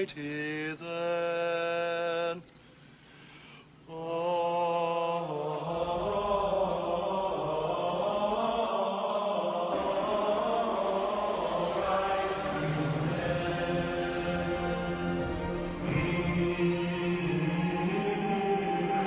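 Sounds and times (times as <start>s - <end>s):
background music: 5.3s - 19.0s.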